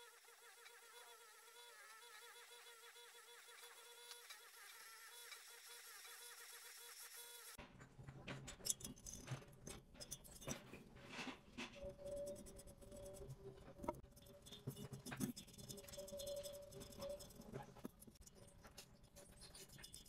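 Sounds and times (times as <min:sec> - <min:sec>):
small hard objects clicking: 0:11.8 - 0:20.0.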